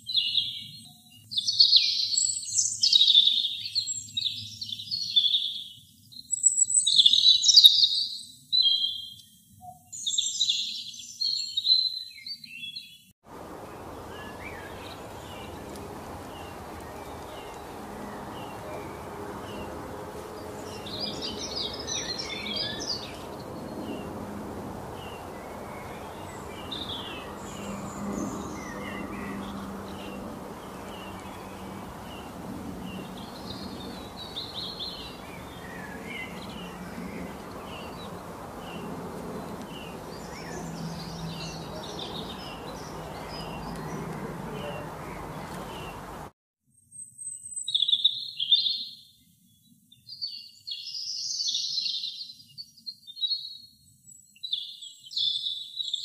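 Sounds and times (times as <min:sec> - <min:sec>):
birds chirping and singing: 0:10.0 - 0:46.3
steady background hiss: 0:13.3 - 0:46.3.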